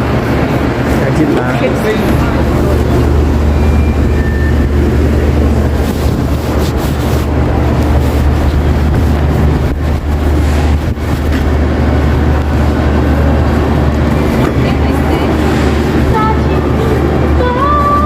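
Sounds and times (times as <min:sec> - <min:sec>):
busy supermarket din: 0:00.0 - 0:18.0
low hum: 0:00.0 - 0:18.0
short electronic beeps: 0:03.2 - 0:04.9.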